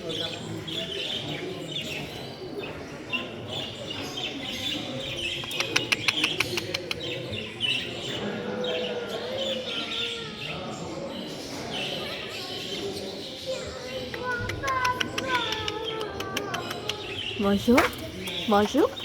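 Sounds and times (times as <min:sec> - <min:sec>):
caged birds chirping: 0:00.0 - 0:19.0
sharp clicks: 0:05.4 - 0:07.1.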